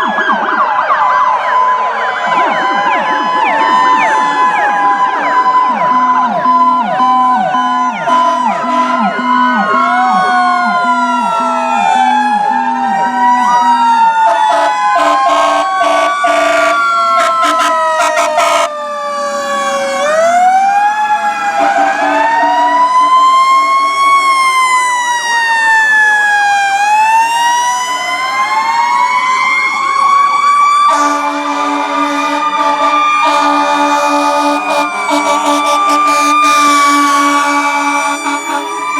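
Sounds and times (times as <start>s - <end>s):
fire truck sirens wailing: 0.0s - 38.9s
steady horn blaring: 7.6s - 9.6s, 14.3s - 18.7s, 21.4s - 24.1s, 30.8s - 38.9s
short horn blasts: 14.6s - 18.7s.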